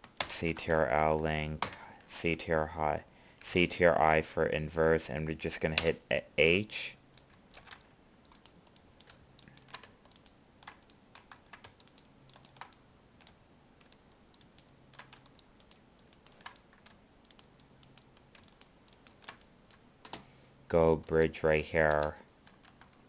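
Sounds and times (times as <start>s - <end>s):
computer keyboard keystrokes: 1.6s - 2.0s, 7.2s - 20.2s, 21.9s - 23.0s.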